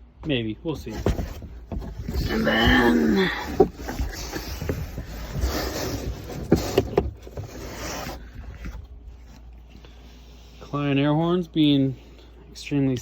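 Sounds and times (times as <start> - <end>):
packaging rustling and scraping: 0.8 - 9.7.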